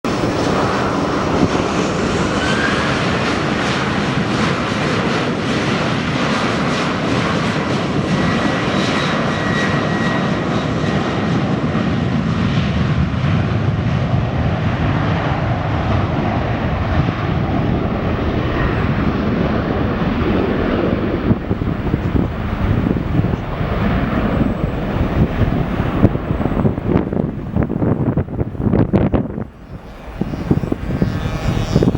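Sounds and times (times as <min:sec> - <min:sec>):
jet engines roaring: 0:00.0 - 0:31.9
faint high whine: 0:21.4 - 0:31.9.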